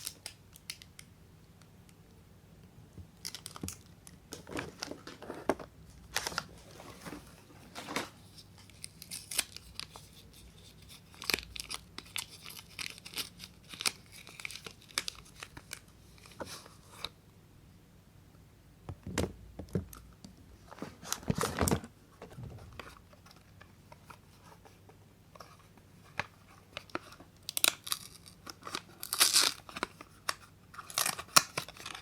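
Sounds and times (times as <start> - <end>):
wrapper tearing and crinkling: 3.2 - 5.3, 8.6 - 16.4, 26.8 - 32.0.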